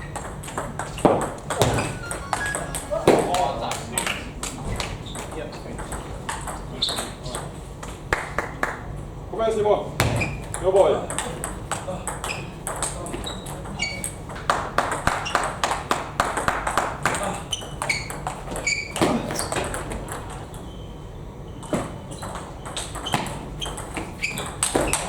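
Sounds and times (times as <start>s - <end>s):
short high squeaks: 1.8s - 2.8s, 13.2s - 14.2s, 17.5s - 19.5s, 21.5s - 25.0s.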